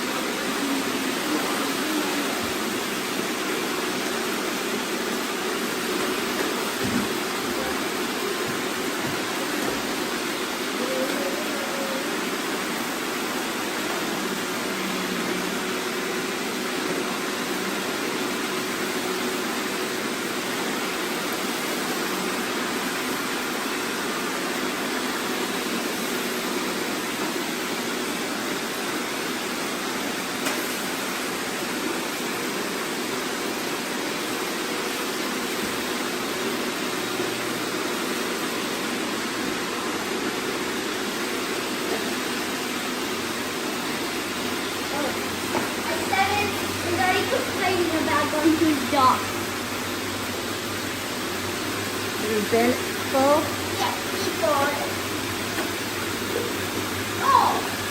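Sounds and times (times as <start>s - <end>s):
robot vacuums whirring: 41.0s - 49.5s.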